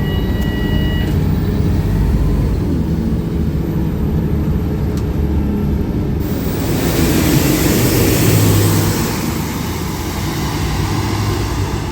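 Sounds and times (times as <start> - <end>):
bus diesel engine running: 0.0 - 11.9
loud rushing noise: 6.2 - 11.9.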